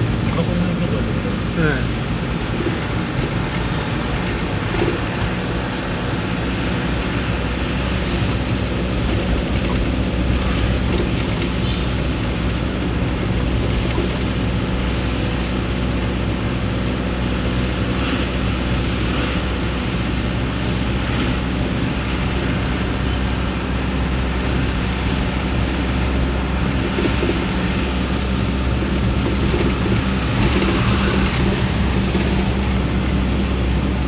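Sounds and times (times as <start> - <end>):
dump truck engine running: 1.2 - 34.0.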